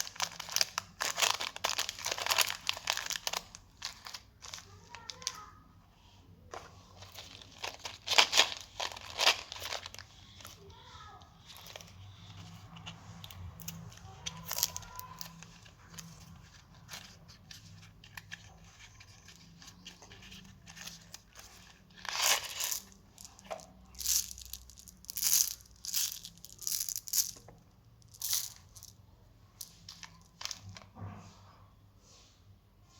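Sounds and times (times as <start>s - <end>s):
plastic packaging rustling: 0.0s - 5.4s, 6.5s - 10.8s, 11.5s - 28.9s
plastic packaging crackling: 0.0s - 5.5s, 6.9s - 10.7s, 13.6s - 16.4s, 17.9s - 28.9s.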